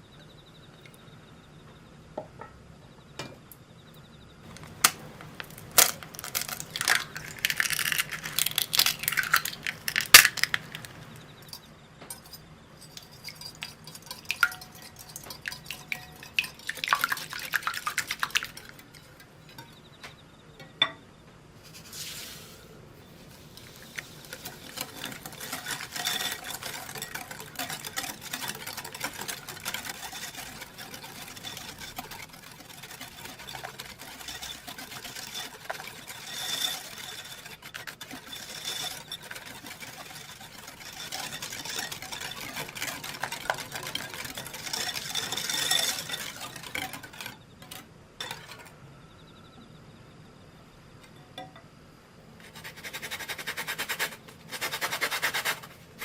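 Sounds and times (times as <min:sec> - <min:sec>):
whisk beating batter in bowl: 0:04.5 - 0:19.9, 0:23.2 - 0:48.7, 0:52.5 - 0:56.0.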